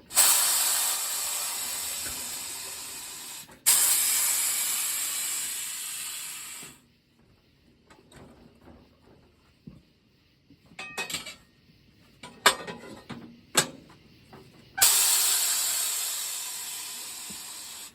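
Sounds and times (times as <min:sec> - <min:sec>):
compressed air hissing: 0:00.0 - 0:06.9, 0:14.0 - 0:17.9.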